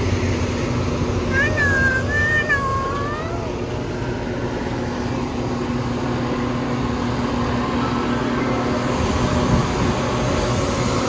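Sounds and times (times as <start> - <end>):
diesel train engine humming: 0.0 - 11.0.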